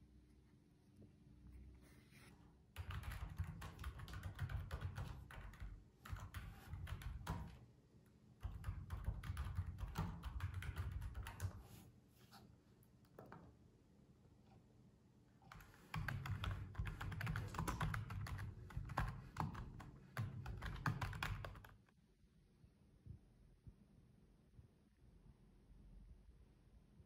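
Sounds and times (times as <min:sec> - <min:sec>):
typing on a keyboard: 0:02.8 - 0:07.6, 0:08.4 - 0:11.6, 0:15.5 - 0:21.9.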